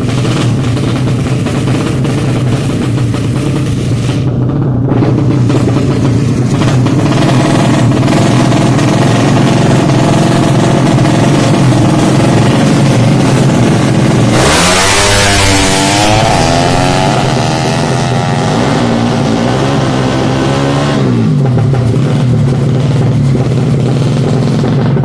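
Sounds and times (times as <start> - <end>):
motorcycle engine idling: 0.0 - 20.3, 21.0 - 25.0
motorcycle engine revving: 0.0 - 25.0.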